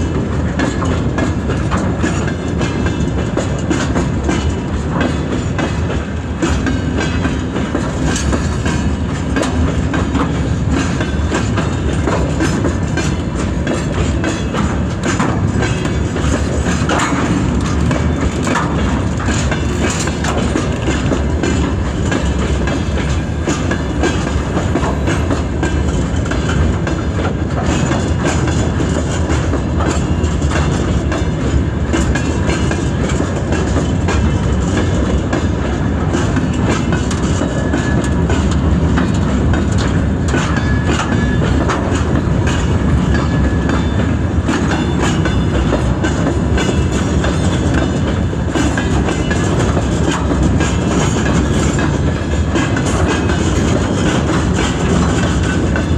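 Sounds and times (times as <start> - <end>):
diesel locomotive rolling past: 0.0 - 55.9
wagon wheels clattering: 7.0 - 27.0, 39.7 - 55.9.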